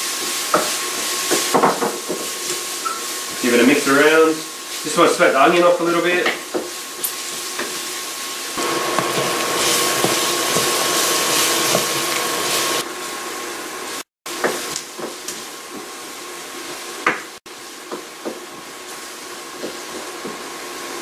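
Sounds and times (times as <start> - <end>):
onion sizzling in hot oil: 0.0 - 21.0
wooden spoon scraping a pan: 8.9 - 12.8.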